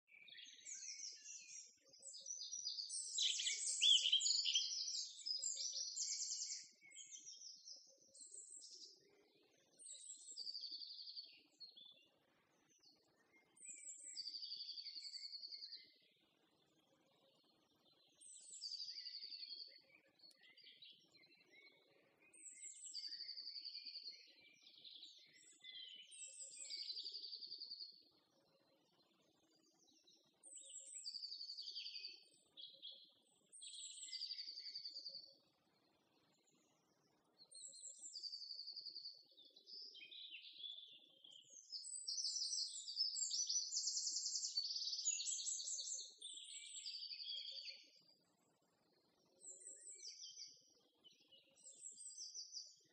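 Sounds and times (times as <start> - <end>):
songbird singing whistled phrases: 0.1 - 8.9, 37.6 - 48.0.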